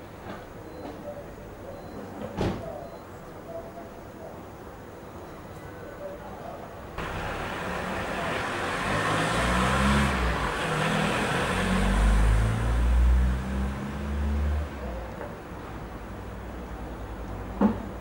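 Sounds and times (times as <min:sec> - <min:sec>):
road noise: 0:03.2 - 0:18.0
vehicle engine revving: 0:07.0 - 0:14.9.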